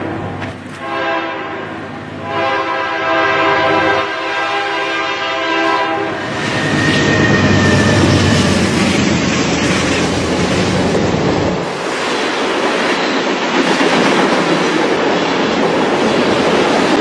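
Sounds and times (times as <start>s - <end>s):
train passing rumble: 0.0s - 17.0s
locomotive horn blasts: 0.8s - 6.4s
thin high squeal: 6.3s - 8.6s.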